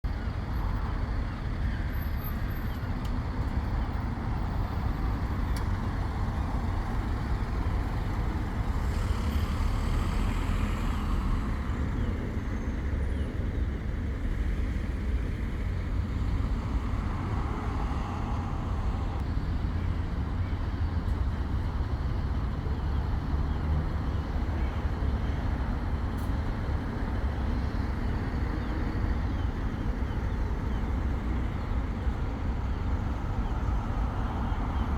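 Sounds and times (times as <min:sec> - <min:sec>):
road traffic rumble: 0:00.0 - 0:34.9
vehicles passing: 0:00.1 - 0:34.9.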